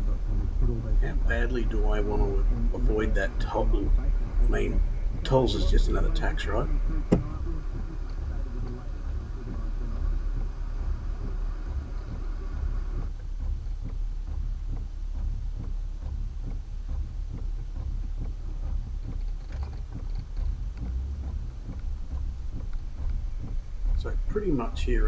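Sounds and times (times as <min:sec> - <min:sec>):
higher hum: 0:00.0 - 0:07.3
car engine idling: 0:00.0 - 0:07.4, 0:22.8 - 0:25.0.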